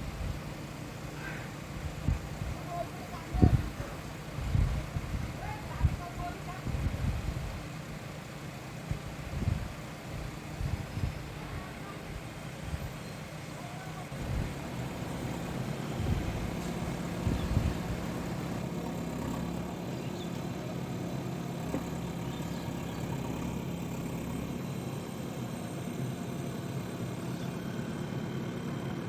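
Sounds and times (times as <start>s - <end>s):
diesel engine running: 0.0s - 29.0s
dull low thumps: 14.2s - 19.2s.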